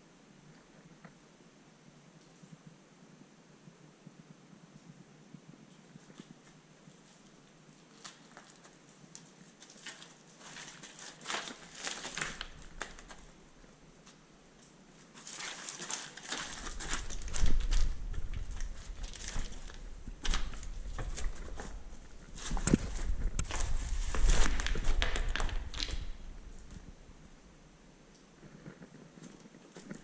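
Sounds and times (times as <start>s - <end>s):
microphone handling noise: 17.0s - 27.4s.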